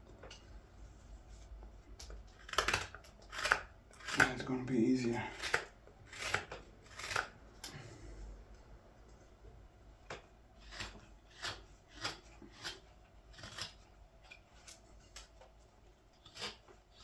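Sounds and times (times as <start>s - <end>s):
blade cutting green wood: 2.3s - 7.4s, 10.1s - 15.3s, 16.1s - 17.0s.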